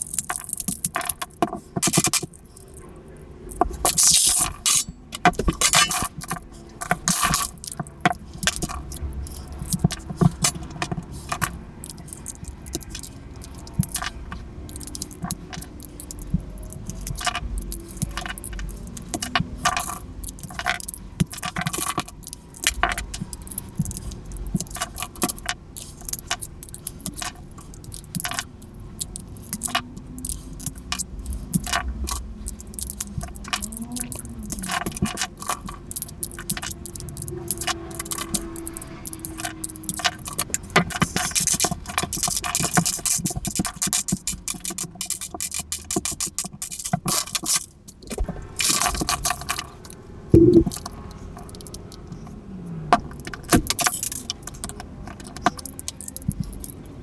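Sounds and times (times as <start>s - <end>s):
plastic pieces scraping: 0.0s - 13.2s
plastic cube pieces clicking: 0.0s - 49.5s, 53.1s - 57.0s.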